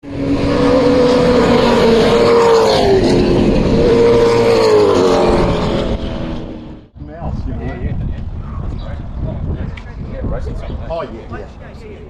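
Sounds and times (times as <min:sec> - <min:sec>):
car engine revving hard: 0:00.0 - 0:06.9.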